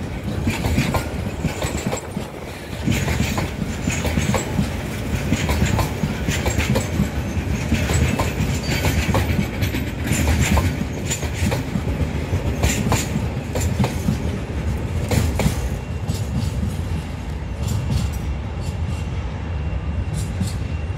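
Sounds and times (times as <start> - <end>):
train clicks and clanks: 0.0 - 20.9
train rumbling: 0.0 - 20.9.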